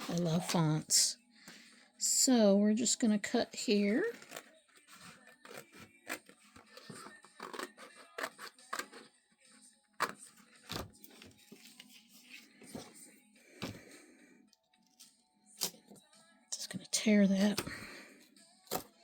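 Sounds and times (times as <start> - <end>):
scissors snipping card: 4.1 - 9.1.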